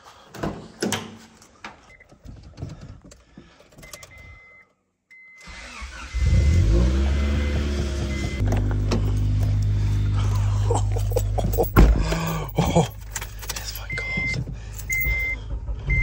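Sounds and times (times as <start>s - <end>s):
car engine cranking and running: 5.4s - 16.0s
keys jangling: 8.6s - 14.0s, 14.7s - 15.3s.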